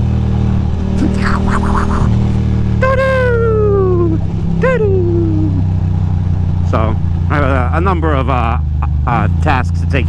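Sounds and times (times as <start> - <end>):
voice-like wail: 1.0 - 2.1, 2.8 - 5.6.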